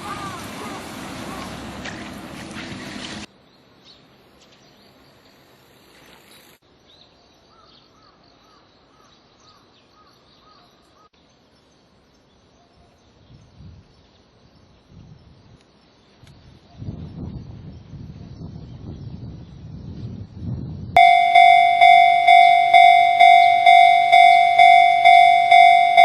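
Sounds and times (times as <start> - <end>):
electric train running over crossing: 0.0 - 3.3, 21.0 - 26.0
faint repeating chirp: 21.0 - 26.0
outdoor hush: 21.0 - 26.0.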